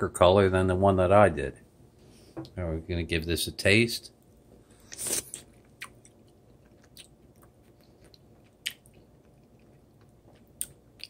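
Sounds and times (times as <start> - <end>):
person biting fried food: 4.8 - 6.0
chewing clicks: 5.4 - 11.0.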